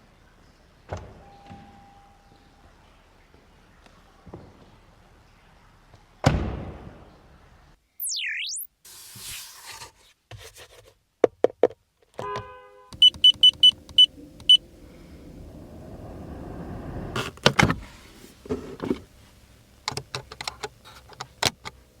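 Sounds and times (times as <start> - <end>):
short high-pitched beeps: 8.0 - 8.7, 13.0 - 14.6
car clicks: 13.0 - 15.4, 19.8 - 21.8
rising hiss: 14.1 - 18.3.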